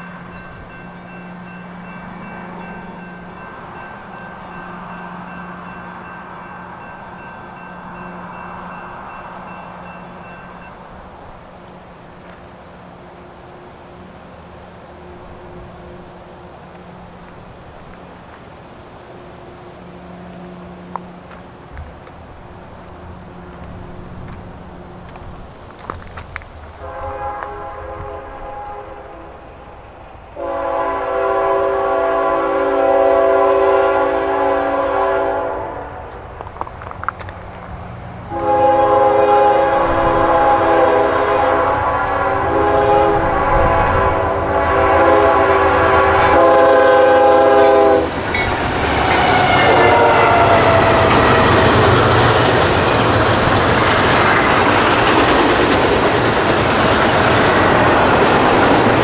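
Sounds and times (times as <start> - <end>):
train rushing past: 0.0 - 59.0
locomotive air horn blasts: 26.8 - 29.4, 30.4 - 36.2, 38.3 - 48.2, 49.0 - 51.6
wheels clattering over rail joints: 46.2 - 49.6.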